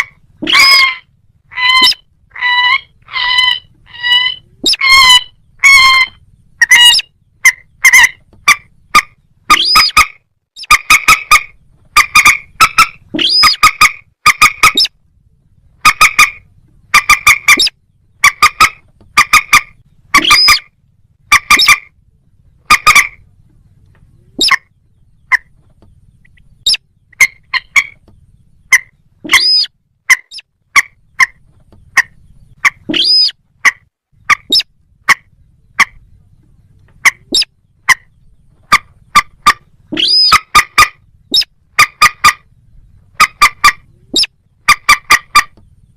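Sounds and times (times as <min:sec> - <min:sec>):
rail bird calling: 0:00.0 - 0:45.9.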